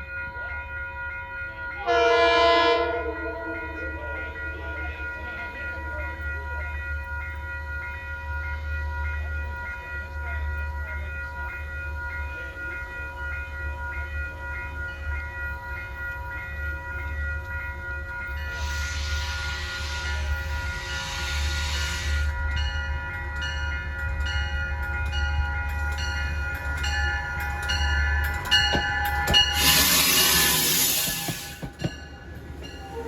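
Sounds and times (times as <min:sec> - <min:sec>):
train locomotive rumble: 0:00.0 - 0:33.0
locomotive hiss: 0:18.4 - 0:22.5, 0:28.8 - 0:31.8.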